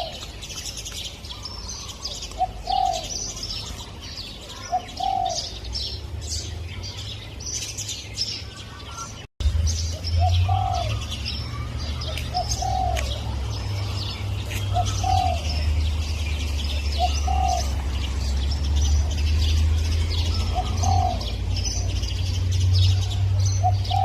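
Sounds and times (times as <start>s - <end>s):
dove cooing: 0.0s - 0.3s, 1.8s - 3.8s, 4.4s - 5.7s, 10.1s - 18.4s, 19.0s - 22.2s, 22.8s - 24.0s
small birds chirping: 0.0s - 24.0s.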